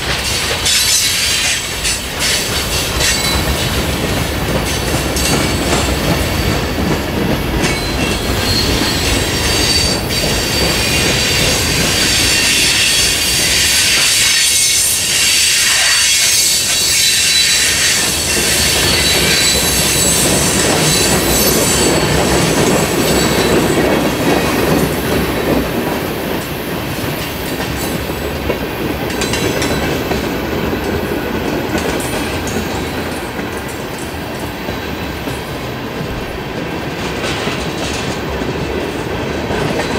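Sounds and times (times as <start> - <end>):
train rumble: 0.0 - 39.9
train wheels clicking over rail joints: 0.0 - 39.9
high wheel squeal: 7.7 - 22.4.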